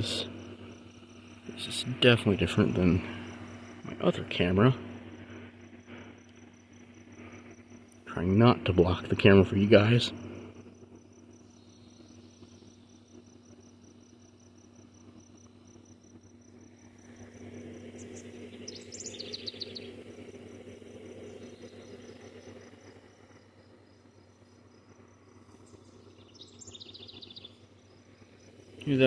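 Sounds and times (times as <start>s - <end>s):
faint low hum: 0.0s - 29.0s
insects trilling: 0.0s - 29.0s
bird chirps: 17.9s - 20.1s, 25.5s - 28.0s.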